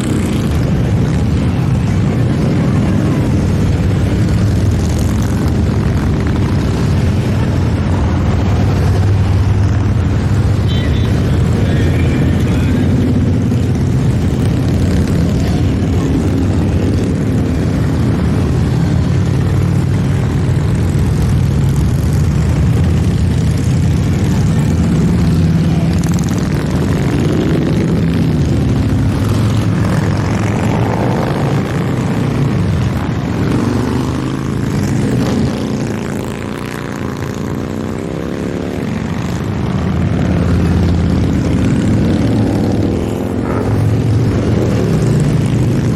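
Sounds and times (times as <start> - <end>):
motorcycles riding past: 0.0 - 45.9.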